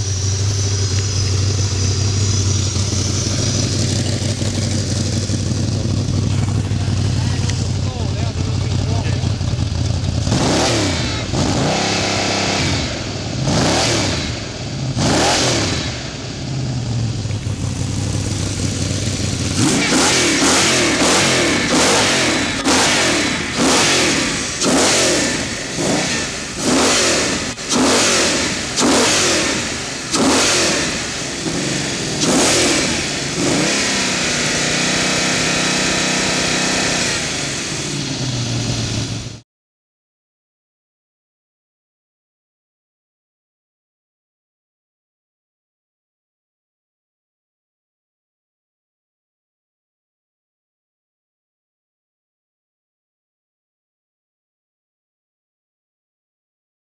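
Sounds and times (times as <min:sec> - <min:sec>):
engine revving with hooting intake: 0:00.0 - 0:08.0, 0:09.8 - 0:17.1, 0:17.7 - 0:39.4.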